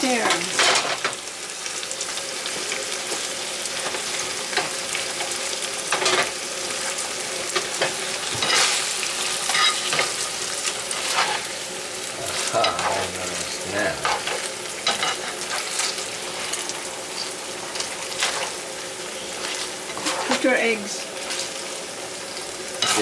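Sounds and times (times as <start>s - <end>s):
meat sizzling in a pan: 0.0s - 23.0s
utensil scraping and clinking pan: 8.3s - 10.3s.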